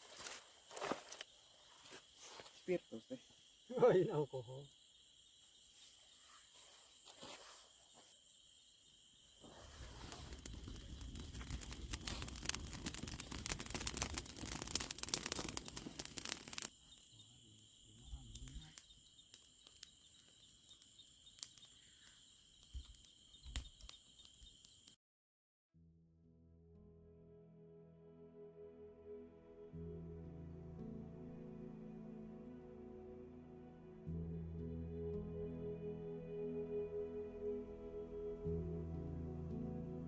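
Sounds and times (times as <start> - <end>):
crackling rustling noise: 0.0 - 2.7, 5.4 - 8.2, 9.4 - 17.0
insects chirring: 0.0 - 25.0.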